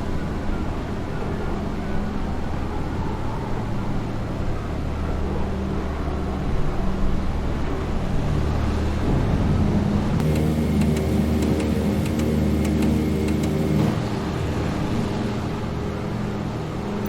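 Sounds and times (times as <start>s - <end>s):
propeller plane engines droning: 0.0s - 17.0s
faint regular ticking: 10.2s - 13.9s.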